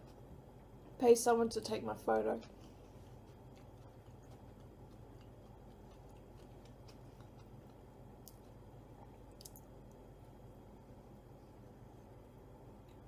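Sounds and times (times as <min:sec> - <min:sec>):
low room noise: 0:00.0 - 0:13.0
person chewing food: 0:02.4 - 0:10.0.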